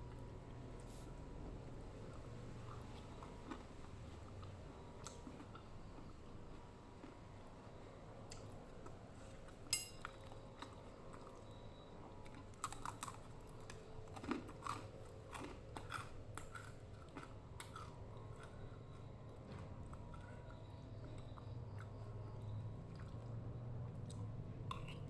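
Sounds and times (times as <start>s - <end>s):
person chewing crunchy food: 2.1s - 7.2s, 12.2s - 25.0s
short ringing clink: 9.8s - 10.0s.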